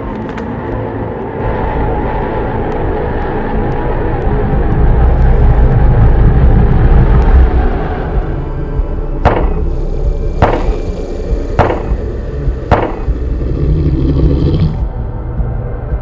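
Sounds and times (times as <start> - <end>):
steady low rumble: 0.0 - 16.0
sharp ringing knocks: 9.2 - 9.7, 10.4 - 10.9, 11.6 - 12.1, 12.7 - 13.2.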